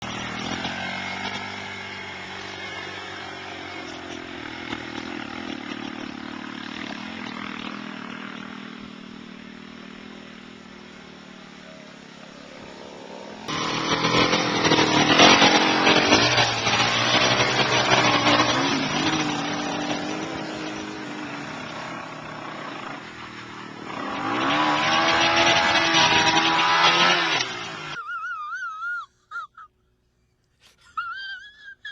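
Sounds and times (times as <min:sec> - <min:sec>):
dirt bike engines revving: 0:00.0 - 0:28.8.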